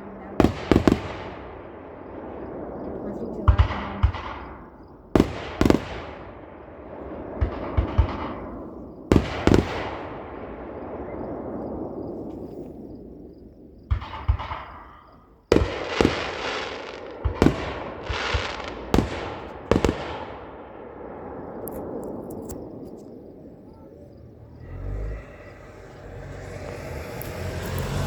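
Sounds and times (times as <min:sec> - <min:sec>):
faint fireworks crackles: 0:00.0 - 0:28.0
fireworks bangs: 0:00.0 - 0:28.0.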